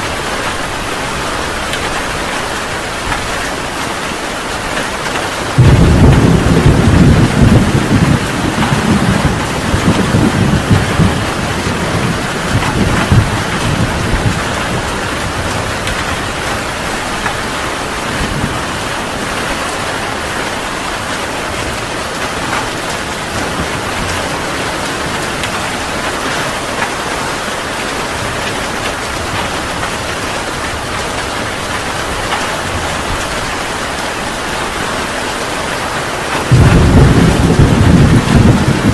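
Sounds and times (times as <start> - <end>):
heavy rain falling: 0.0 - 38.9
thunder rumbling: 0.0 - 38.9.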